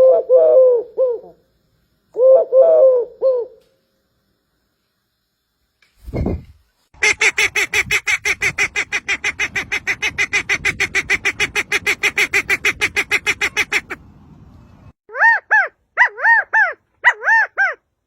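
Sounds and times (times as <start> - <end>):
bird calling harsh notes: 7.0 - 14.0.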